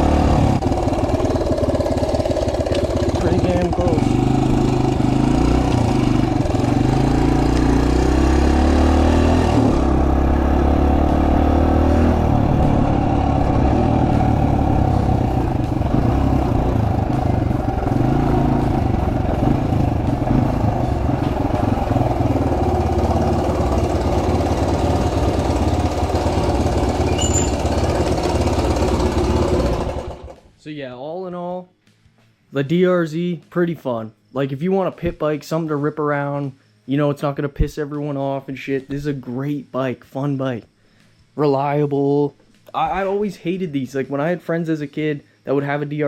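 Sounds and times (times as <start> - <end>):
motorcycle engine running: 0.0 - 30.5.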